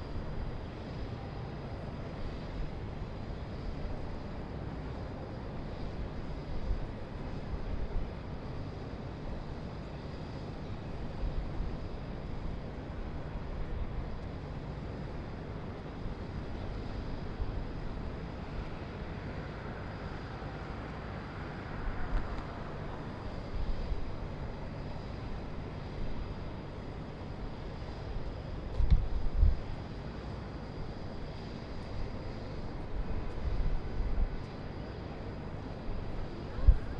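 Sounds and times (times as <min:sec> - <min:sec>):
distant traffic rumble: 0:15.8 - 0:30.1.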